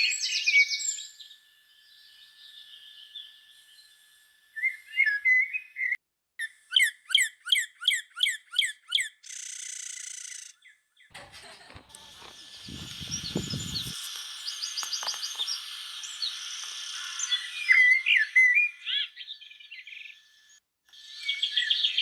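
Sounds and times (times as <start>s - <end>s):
high even buzzing: 11.2s - 22.0s
songbirds chirping: 12.2s - 15.6s
bird whistling down-slurred notes: 17.2s - 20.2s.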